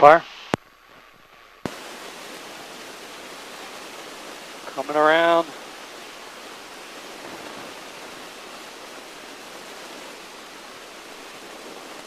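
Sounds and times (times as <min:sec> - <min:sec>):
aircraft cabin rushing noise: 0:07.0 - 0:08.5.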